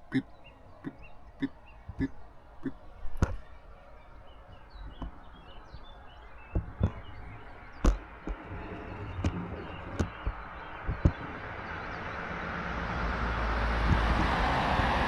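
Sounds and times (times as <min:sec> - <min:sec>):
small birds chirping: 0:00.0 - 0:15.0
sharp knocks: 0:01.9 - 0:03.5, 0:06.5 - 0:11.7.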